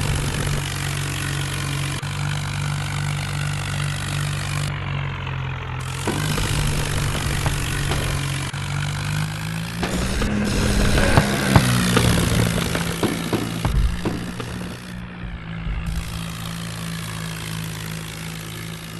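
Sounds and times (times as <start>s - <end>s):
tractor diesel engine idling: 0.0s - 18.9s.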